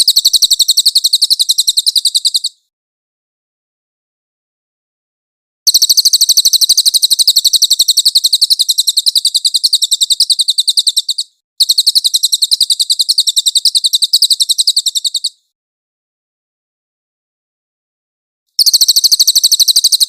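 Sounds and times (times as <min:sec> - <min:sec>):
bird high-pitched trill: 0:00.0 - 0:02.6, 0:05.7 - 0:15.4, 0:18.6 - 0:20.0.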